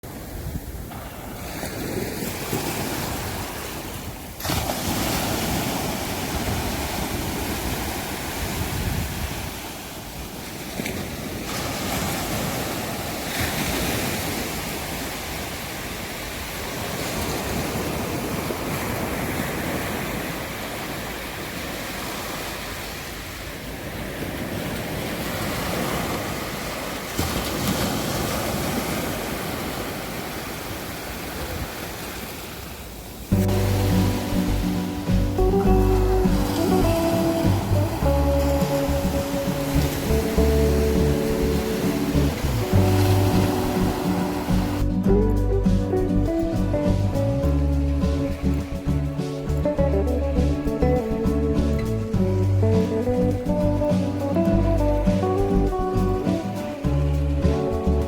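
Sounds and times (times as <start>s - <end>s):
sea surf breaking on beach: 0.0s - 58.0s
wind buffeting microphone: 0.1s - 21.2s, 33.3s - 58.0s.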